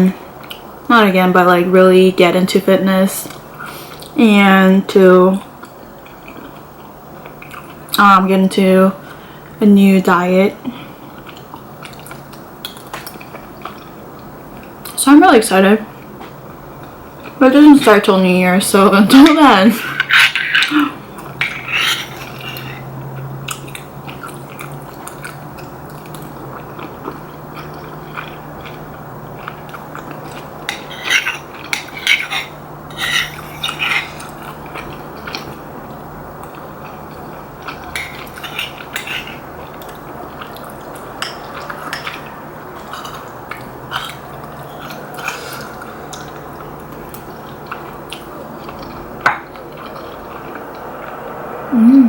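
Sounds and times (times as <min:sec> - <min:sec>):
chewing: 0:05.4 - 0:07.9, 0:11.1 - 0:15.0, 0:19.8 - 0:51.2.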